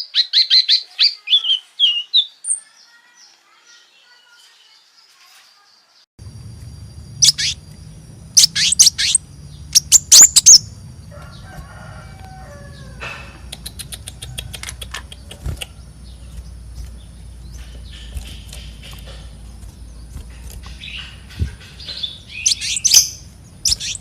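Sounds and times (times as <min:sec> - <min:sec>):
faint ticking bird notes: 0:06.2 - 0:24.0
bird sharp downward chirps: 0:07.1 - 0:10.8, 0:17.6 - 0:24.0.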